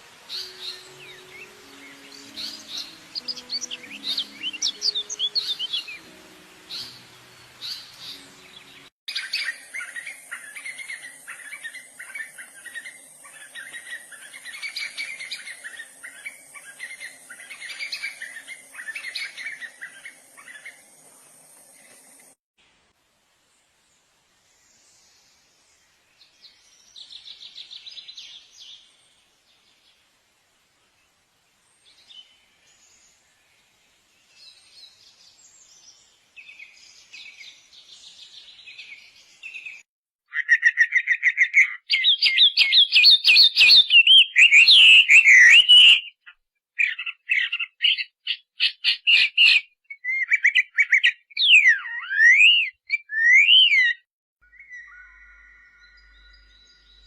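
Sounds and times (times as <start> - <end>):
birds calling: 40.4 - 57.0.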